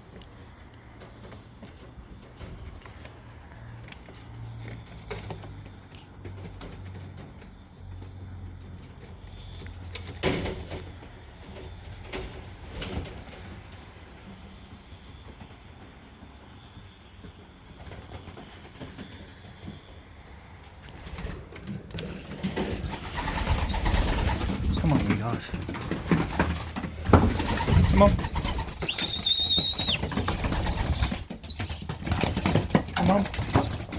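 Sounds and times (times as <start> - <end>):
pigeons cooing: 22.5 - 33.9
small high chirps: 22.8 - 25.1, 27.3 - 33.9.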